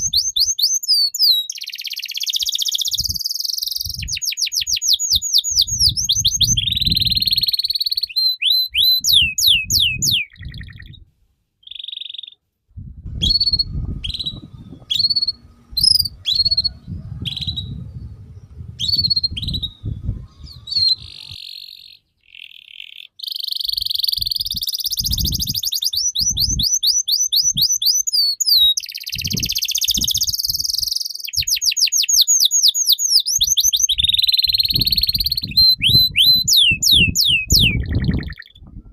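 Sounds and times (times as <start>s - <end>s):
songbird singing: 0.0s - 11.0s, 11.6s - 12.4s, 13.1s - 38.9s
low thumps: 12.8s - 21.4s.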